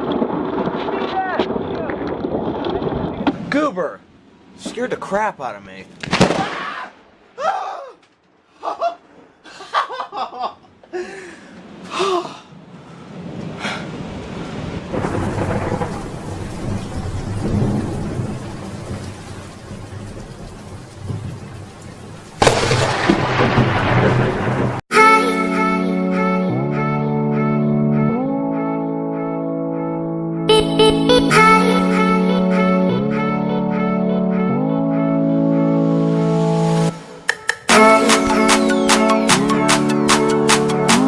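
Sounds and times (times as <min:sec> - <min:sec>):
loud thunder crack: 0:00.0 - 0:03.5, 0:06.1 - 0:06.7, 0:13.2 - 0:21.4, 0:22.4 - 0:24.8
low rolling thunder rumble: 0:00.0 - 0:03.5, 0:12.5 - 0:24.8
rain falling: 0:11.1 - 0:24.8.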